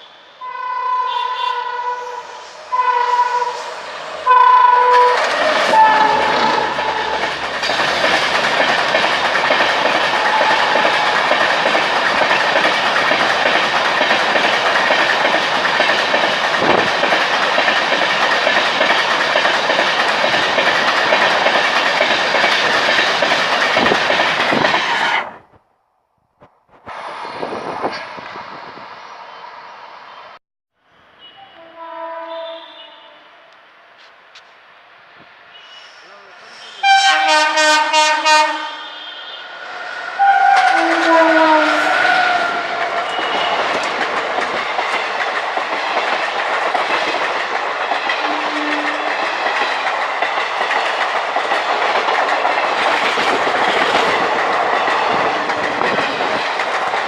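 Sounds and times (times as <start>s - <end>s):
train horn blasts: 0.4s - 7.4s, 10.2s - 10.9s, 31.2s - 33.5s, 36.6s - 39.6s, 40.2s - 43.6s, 48.2s - 49.2s
train wheels clacking over rails: 3.6s - 25.2s, 40.4s - 57.0s.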